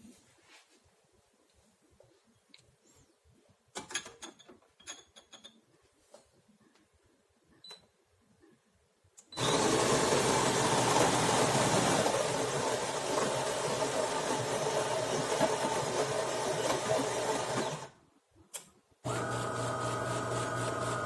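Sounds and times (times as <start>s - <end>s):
espresso machine whirring: 9.4s - 17.9s, 19.1s - 21.0s.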